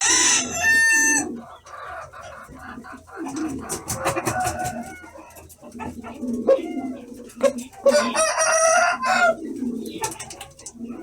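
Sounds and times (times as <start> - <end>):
rooster crowing: 0.0 - 1.3, 4.0 - 5.3, 7.8 - 9.4
fowl calls: 0.0 - 10.6.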